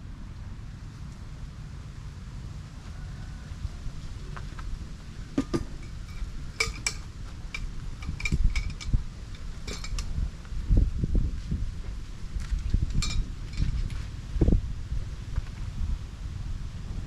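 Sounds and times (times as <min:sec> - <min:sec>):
steady low rumble: 0:00.0 - 0:17.0
metal utensils clinking: 0:05.8 - 0:10.0.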